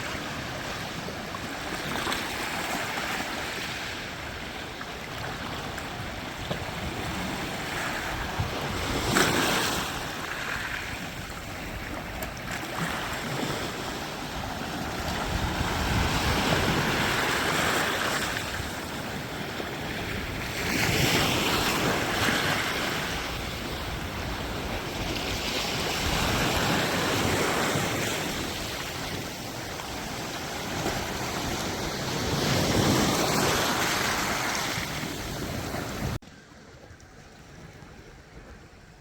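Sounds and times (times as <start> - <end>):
wind rumbling on microphone: 0.0 - 39.0
sea surf washing in: 5.6 - 36.7.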